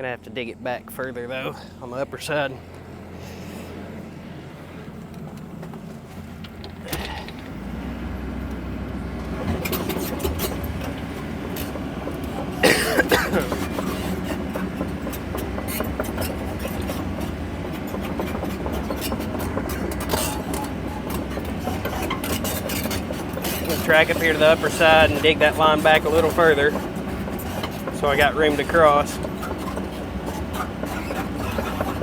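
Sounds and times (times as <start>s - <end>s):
excavator diesel engine running: 0.0s - 32.0s
bucket scraping through dirt: 18.3s - 32.0s.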